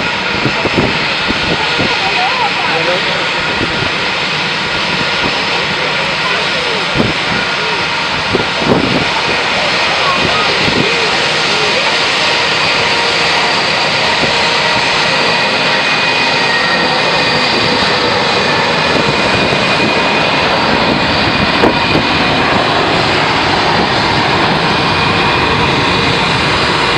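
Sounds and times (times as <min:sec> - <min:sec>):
airliner engines roaring: 0:00.0 - 0:26.9.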